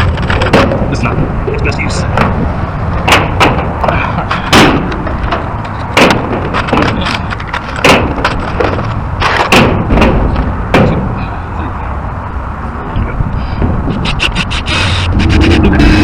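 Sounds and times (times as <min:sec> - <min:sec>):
loud bangs: 0:00.0 - 0:11.2
low rumble: 0:12.5 - 0:16.0.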